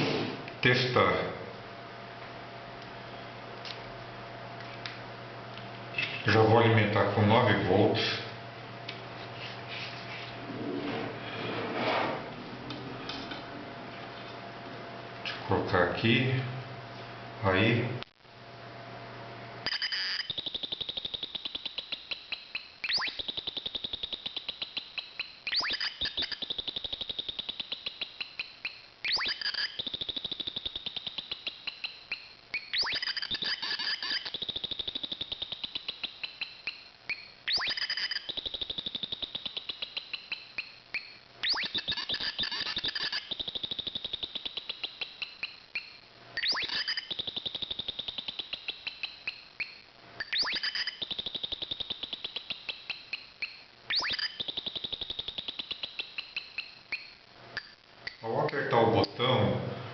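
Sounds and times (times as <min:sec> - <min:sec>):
electronic bird-call chirps: 0:19.6 - 0:58.2.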